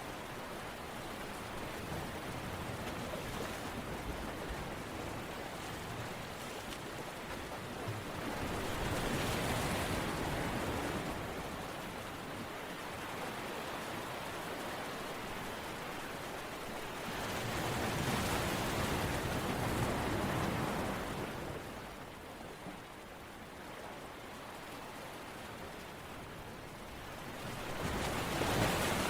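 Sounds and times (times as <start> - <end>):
rushing water: 0.0 - 29.0.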